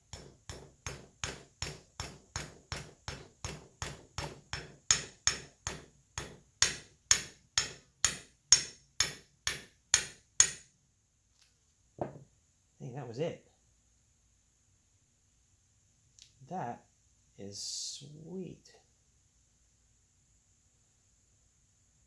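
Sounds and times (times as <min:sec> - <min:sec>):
small hammer tapping: 0:00.0 - 0:10.6.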